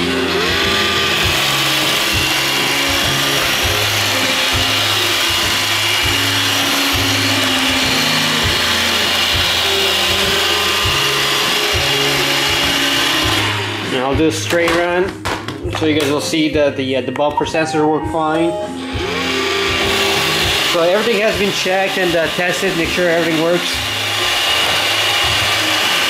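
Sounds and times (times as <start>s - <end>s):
robot vacuum whirring: 0.0s - 14.1s.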